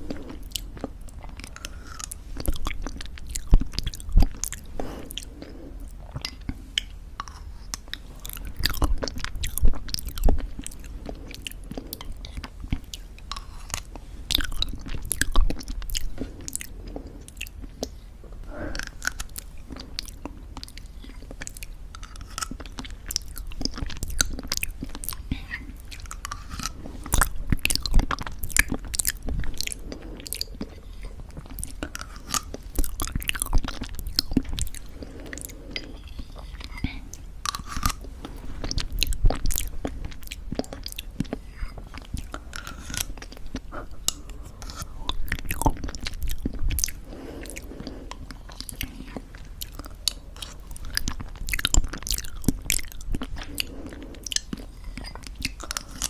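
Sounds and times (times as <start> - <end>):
crunching and chewing granola: 0.0 - 56.0
wet mouth sounds: 0.0 - 56.0.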